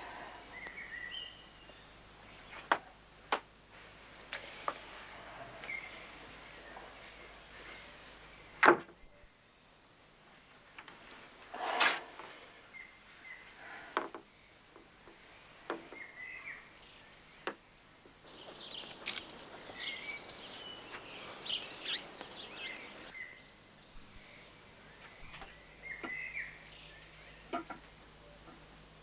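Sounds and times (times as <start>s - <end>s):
songbirds chirping: 0.0s - 29.0s
sharp clicks: 18.8s - 19.4s.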